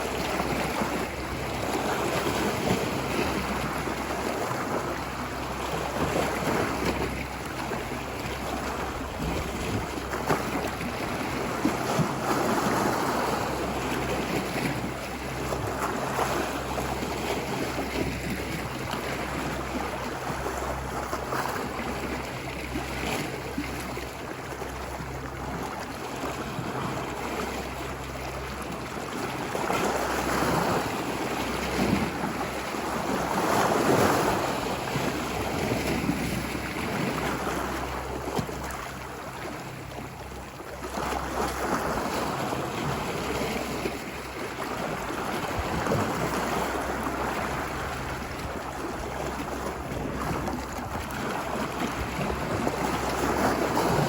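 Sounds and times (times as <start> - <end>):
wind noise on microphone: 0.0 - 24.0, 40.9 - 54.0
ocean waves washing ashore: 0.0 - 54.0.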